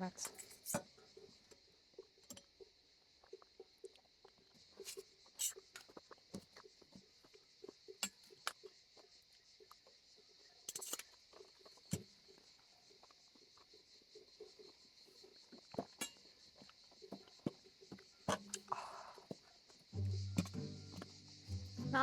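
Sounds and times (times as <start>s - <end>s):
cutlery clinking against plates: 10.7s - 11.1s.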